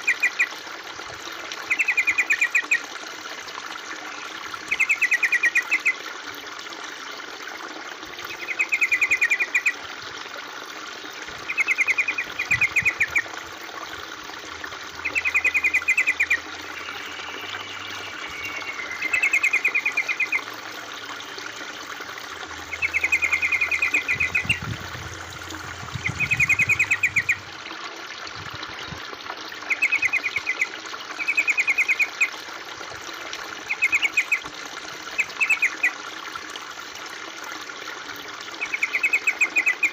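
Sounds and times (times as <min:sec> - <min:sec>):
water trickling: 0:00.0 - 0:39.9
songbird chattering: 0:22.6 - 0:27.5.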